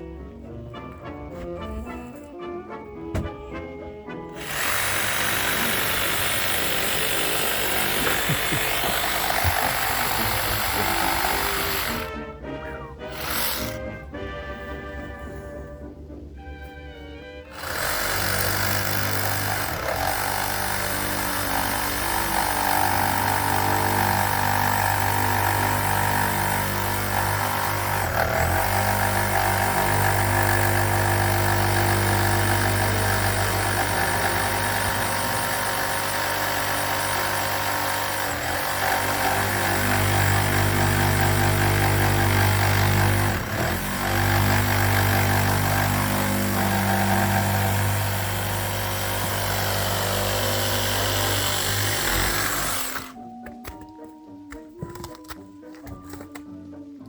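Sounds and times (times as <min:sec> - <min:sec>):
heavy machinery engine running: 0:04.3 - 0:12.2, 0:17.5 - 0:53.1.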